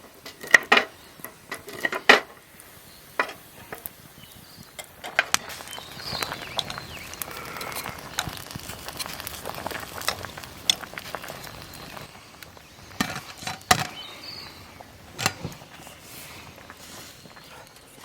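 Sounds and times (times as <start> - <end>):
cooking gear clinking: 4.6 - 18.0.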